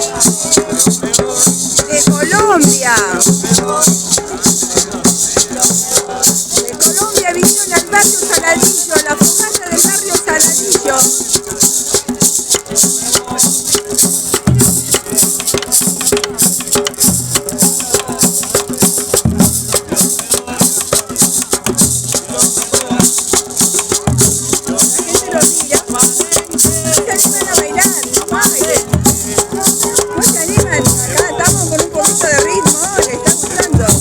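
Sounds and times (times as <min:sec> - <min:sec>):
fast shaker rhythm: 0:00.0 - 0:34.0.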